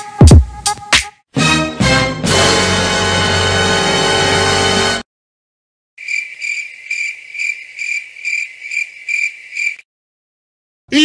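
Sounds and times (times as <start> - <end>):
cricket chirping: 6.0 - 9.8.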